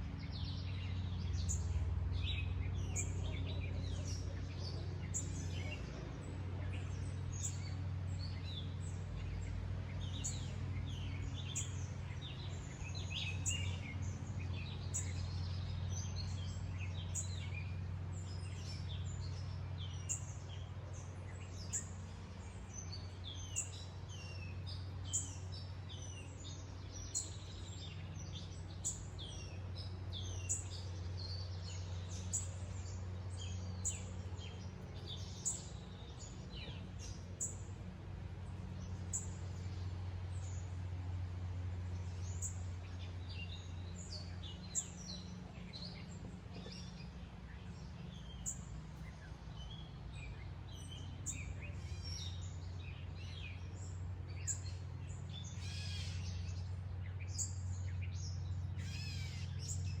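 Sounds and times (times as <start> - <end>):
bird warbling song: 0.0 - 60.0
songbirds chirping: 0.0 - 60.0.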